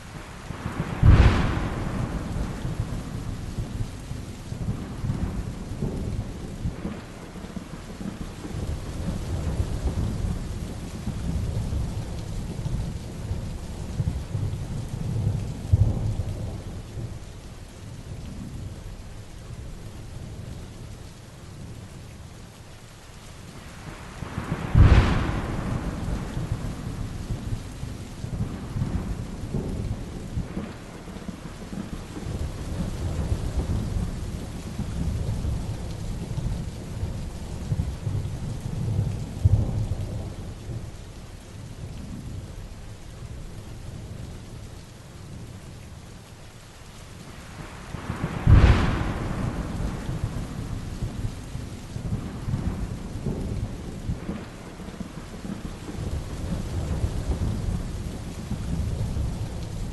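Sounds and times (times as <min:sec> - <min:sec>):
heavy rain falling: 0:00.0 - 0:59.9
rolling thunder rumbles: 0:00.5 - 0:17.3, 0:23.8 - 0:41.0, 0:47.4 - 0:59.9
sharp thunderclaps: 0:00.6 - 0:03.9, 0:24.2 - 0:36.7, 0:47.6 - 0:51.4, 0:52.0 - 0:59.9.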